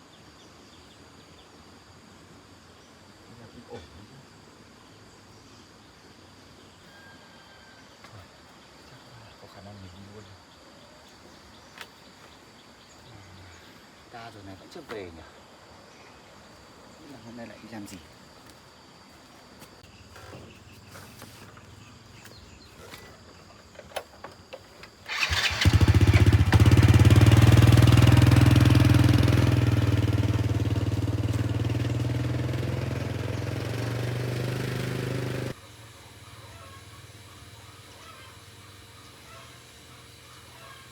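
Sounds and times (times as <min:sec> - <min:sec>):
motorbike engine running: 0:25.1 - 0:40.9.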